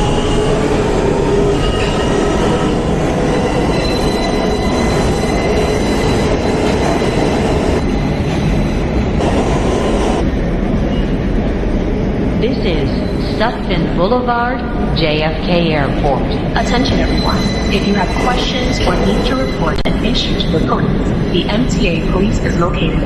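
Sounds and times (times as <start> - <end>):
train wheels rumbling on rail: 0.0 - 12.4
high wheel squeal: 3.4 - 7.8.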